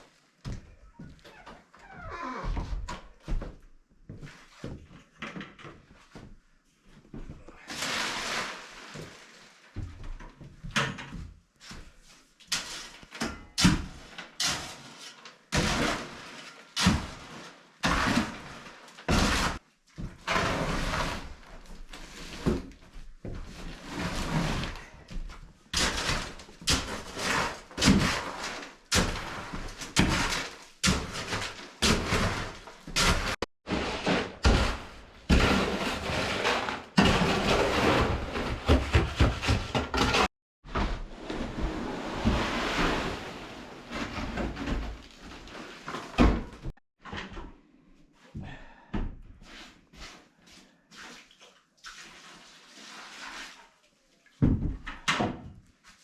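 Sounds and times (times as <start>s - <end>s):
scraping noises: 23.4s - 46.7s.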